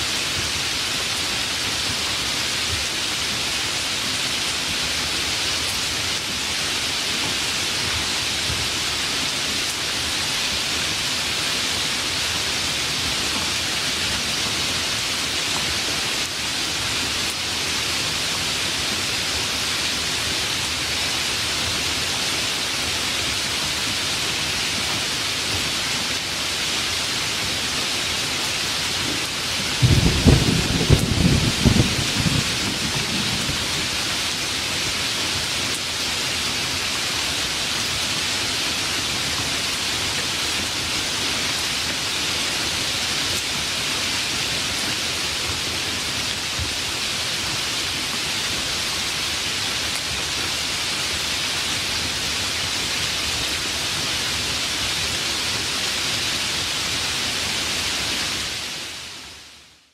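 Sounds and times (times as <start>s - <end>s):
heavy rain: 0.0s - 59.9s
low thunder rumble: 29.8s - 33.9s.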